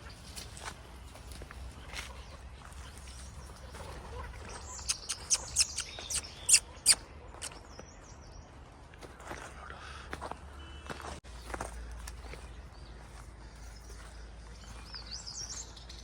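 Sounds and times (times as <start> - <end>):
bird chirping: 4.5 - 8.6.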